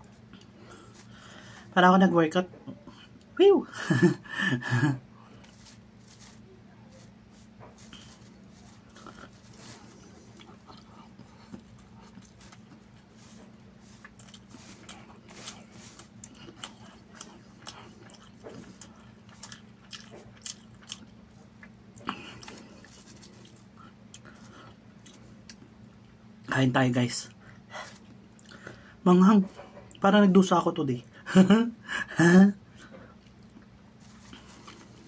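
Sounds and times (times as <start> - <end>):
person chewing: 0.0 - 1.6, 5.2 - 26.2, 27.3 - 28.9, 32.8 - 35.0
fingers picking at rice: 5.4 - 25.7.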